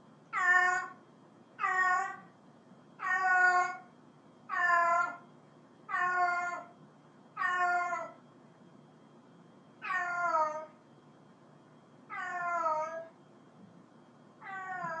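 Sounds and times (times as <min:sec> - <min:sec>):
cat meowing: 0:00.3 - 0:01.0, 0:01.6 - 0:02.3, 0:03.0 - 0:03.8, 0:04.5 - 0:05.2, 0:05.9 - 0:06.7, 0:07.4 - 0:08.2, 0:09.8 - 0:10.7, 0:12.1 - 0:13.1, 0:14.4 - 0:15.0.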